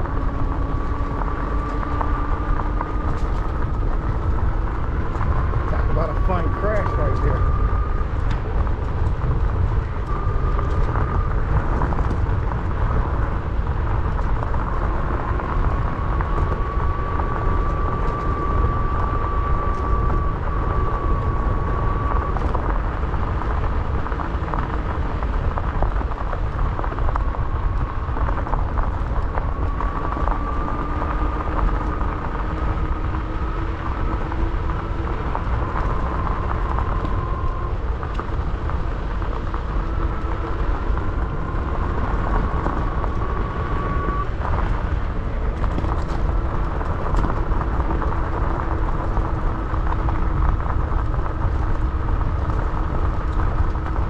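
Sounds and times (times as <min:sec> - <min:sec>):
bike tyre noise on dirt: 0:00.0 - 0:54.0
electric motor whine: 0:00.0 - 0:54.0
small rattles and ticks: 0:00.0 - 0:54.0
wind rumbling on microphone: 0:00.0 - 0:54.0.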